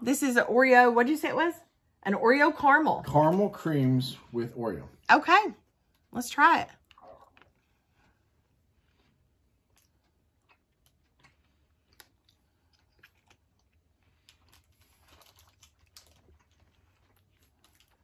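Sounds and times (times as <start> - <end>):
faint chewing of candy: 5.6 - 18.0.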